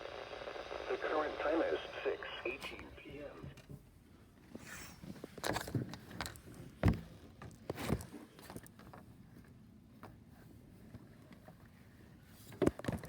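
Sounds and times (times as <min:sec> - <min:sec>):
handling knocks and rustles: 0:05.1 - 0:10.2.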